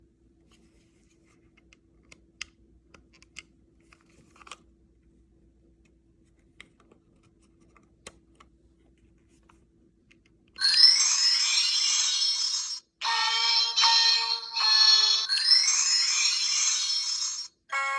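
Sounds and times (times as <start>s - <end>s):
faint clicks and handling noises: 0.5s - 4.7s, 5.7s - 10.6s
tinny electronic toy tune: 10.6s - 17.9s.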